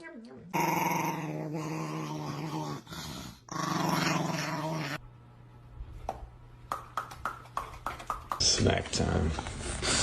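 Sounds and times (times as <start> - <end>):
dog growling: 0.5 - 5.0.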